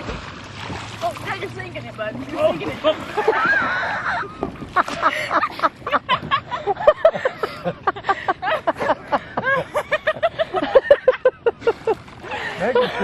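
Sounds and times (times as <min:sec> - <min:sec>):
people laughing hard: 0:02.8 - 0:13.0.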